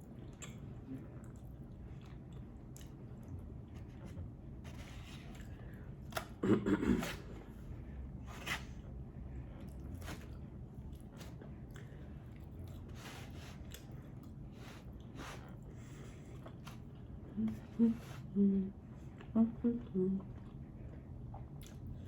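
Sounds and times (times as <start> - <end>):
person chewing food: 0.0 - 6.4, 8.8 - 17.6, 20.2 - 22.0.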